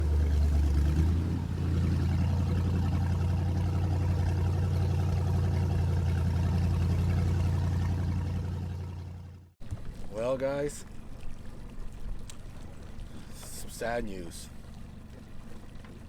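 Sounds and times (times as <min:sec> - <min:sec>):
boat motor running: 0:00.0 - 0:10.0, 0:10.8 - 0:16.0.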